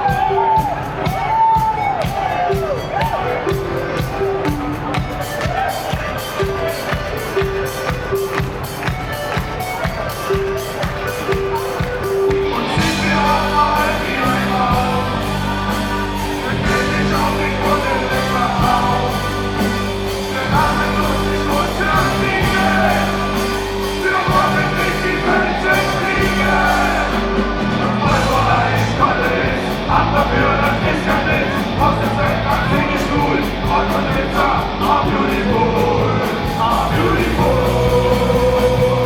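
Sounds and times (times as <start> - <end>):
live reggae band playing: 0.0 - 39.0
person singing lead vocal: 10.2 - 39.0
bass line: 11.3 - 39.0.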